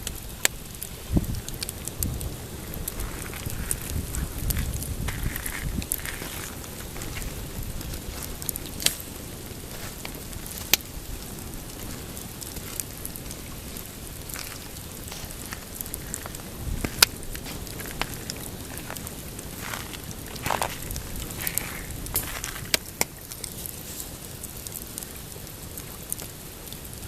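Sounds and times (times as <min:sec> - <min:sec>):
campfire crackling and popping: 0:00.0 - 0:27.0
steady low rush: 0:01.0 - 0:23.0.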